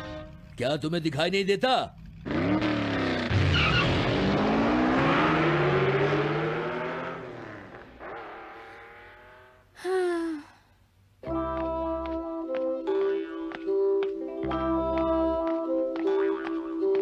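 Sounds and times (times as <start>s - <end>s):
cartoon car engine revving: 0.0s - 9.8s
falling tone: 2.4s - 9.7s.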